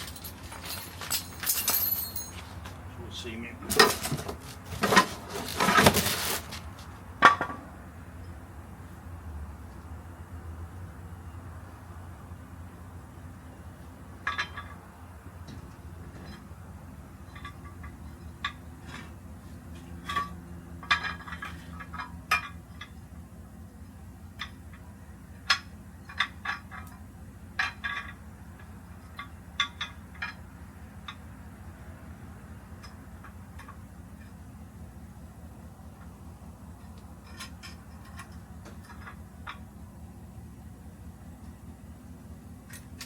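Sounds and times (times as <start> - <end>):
metallic clinks of hand tools: 0.0 - 2.5.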